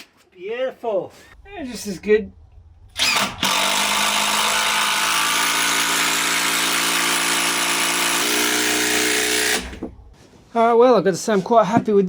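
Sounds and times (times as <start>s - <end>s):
power drill running under load: 3.0s - 9.8s.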